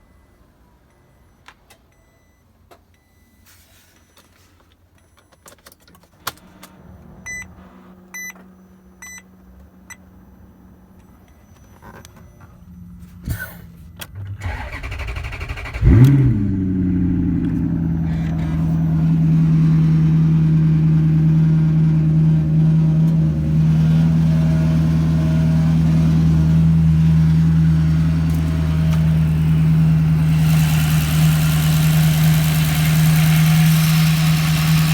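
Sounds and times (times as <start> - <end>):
car engine starting and idling: 5.6 - 34.9
ignition clicks: 13.3 - 22.4, 23.0 - 34.9.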